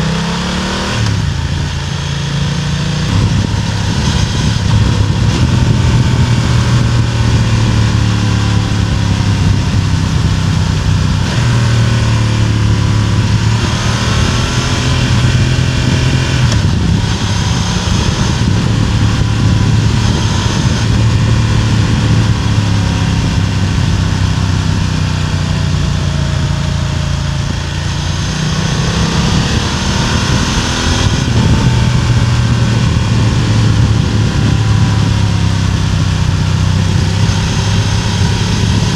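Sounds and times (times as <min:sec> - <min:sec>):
motorcycle engine exhaust: 0:00.0 - 0:38.9.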